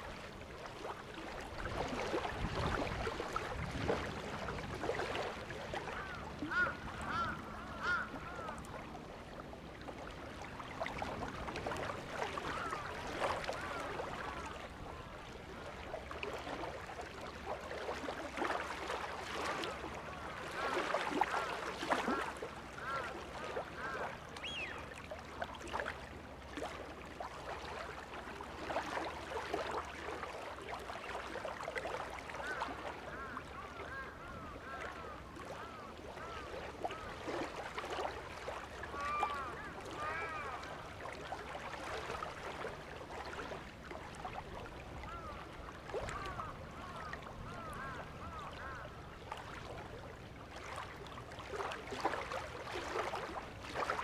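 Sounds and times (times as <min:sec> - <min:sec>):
wild birds calling: 0:23.8 - 0:24.8.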